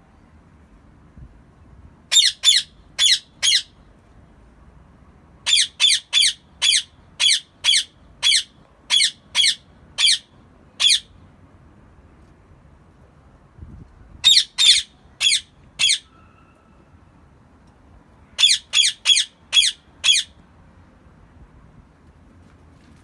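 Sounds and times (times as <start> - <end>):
parakeet screeching: 2.1 - 3.7, 5.5 - 11.1, 14.2 - 16.1, 18.4 - 20.4.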